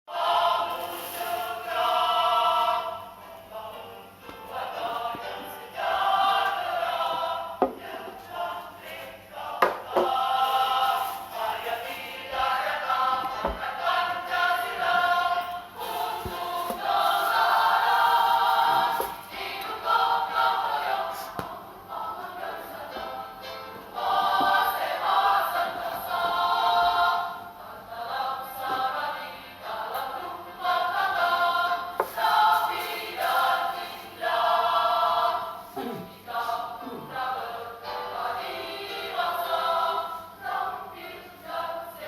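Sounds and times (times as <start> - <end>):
group singing in chorus: 0.1 - 42.0.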